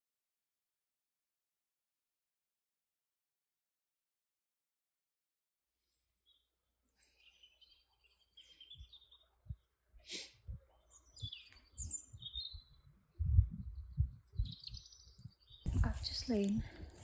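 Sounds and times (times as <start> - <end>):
small birds chirping: 5.9 - 17.0
low thuds: 13.2 - 17.0.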